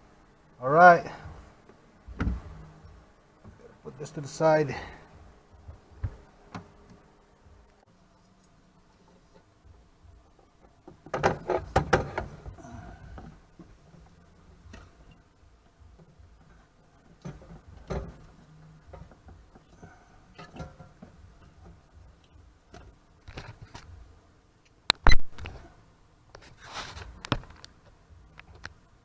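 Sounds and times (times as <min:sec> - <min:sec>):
brief scrape: 0:26.4 - 0:27.1.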